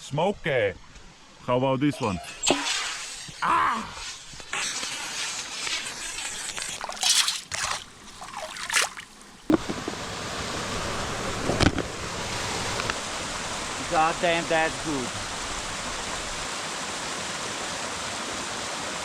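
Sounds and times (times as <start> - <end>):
running water hiss: 0.1 - 19.0
water trickling and sloshing: 5.3 - 16.6.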